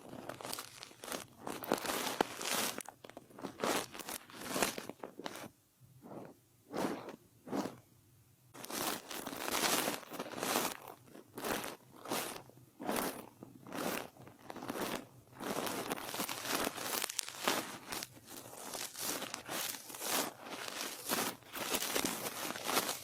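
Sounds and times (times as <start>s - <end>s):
soft brush stroking microphone: 0.0s - 7.8s, 8.6s - 23.0s.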